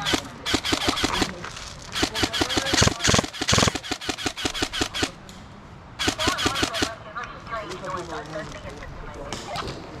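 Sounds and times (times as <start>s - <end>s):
airsoft gun firing rapidly: 0.0s - 1.4s, 2.0s - 5.2s, 6.0s - 7.0s.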